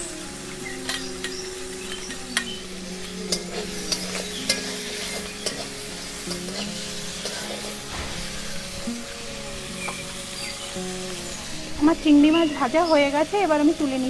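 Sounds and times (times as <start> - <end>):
prawns sizzling in hot oil: 0.0 - 14.0
metal utensil clinking: 0.7 - 8.4.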